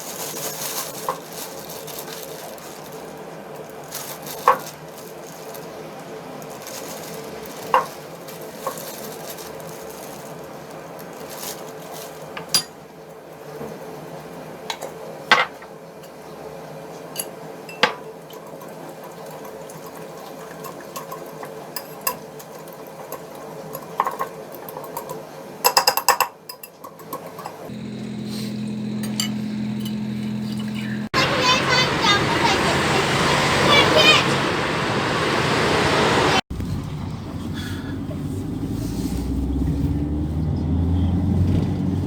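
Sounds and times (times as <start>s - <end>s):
dishes and cutlery clinking: 12.4s - 12.8s, 17.1s - 18.8s, 20.5s - 27.7s, 29.0s - 30.7s.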